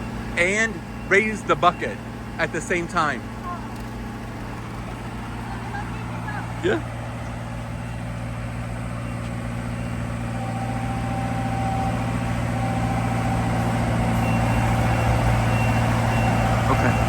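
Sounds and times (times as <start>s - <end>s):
skid steer engine running: 0.0s - 17.0s.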